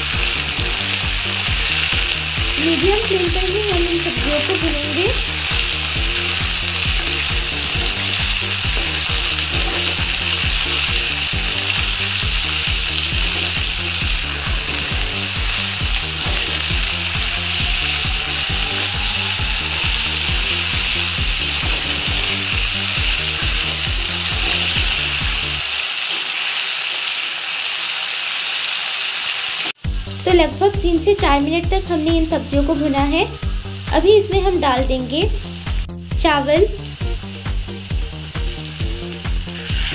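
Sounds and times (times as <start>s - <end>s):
vegetables sizzling in oil: 0.0s - 39.9s.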